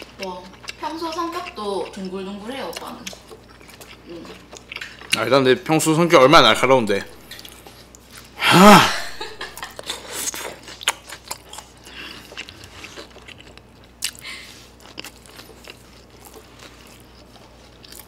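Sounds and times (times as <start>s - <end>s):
person chewing food: 0.0s - 5.8s, 7.1s - 8.4s, 9.4s - 18.0s
loud vocal exclamation: 8.4s - 9.2s.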